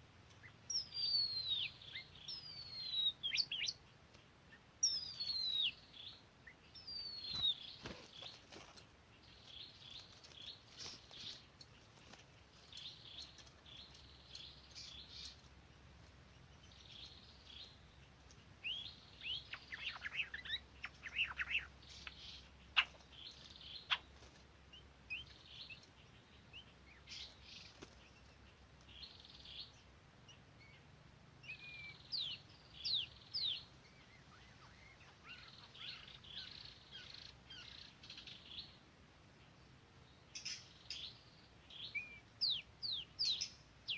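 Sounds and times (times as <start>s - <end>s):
birds chirping and whistling: 0.4s - 3.8s, 4.8s - 11.5s, 18.6s - 24.1s, 31.4s - 38.7s, 40.4s - 43.9s.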